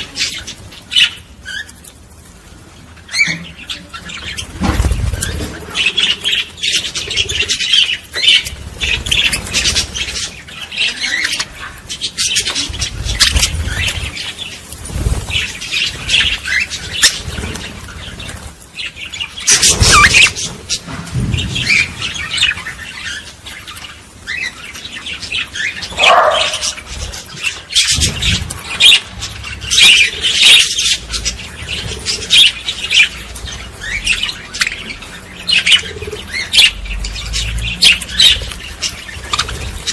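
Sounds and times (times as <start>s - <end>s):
small birds chirping: 0.0s - 39.9s
low thumps: 20.8s - 22.7s.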